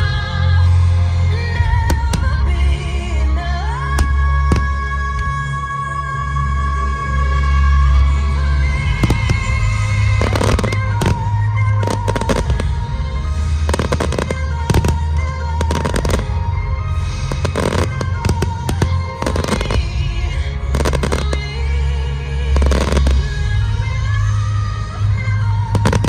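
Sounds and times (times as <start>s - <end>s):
fireworks bangs: 1.7s - 2.6s, 4.0s - 5.4s, 8.9s - 21.6s, 22.6s - 23.3s, 25.7s - 26.0s
loud music with heavy bass: 8.1s - 26.0s.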